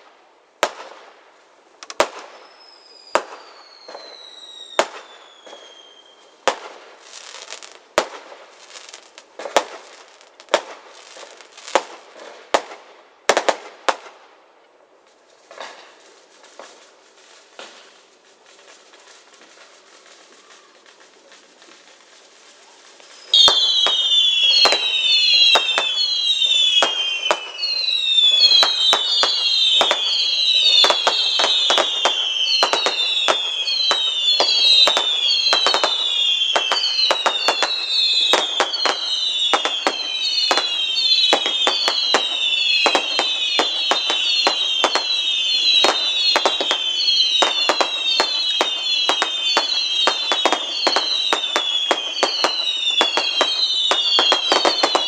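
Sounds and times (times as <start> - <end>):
fireworks banging: 1.8 - 14.2, 15.4 - 55.0
fireworks whistling: 1.8 - 14.2, 15.4 - 55.0.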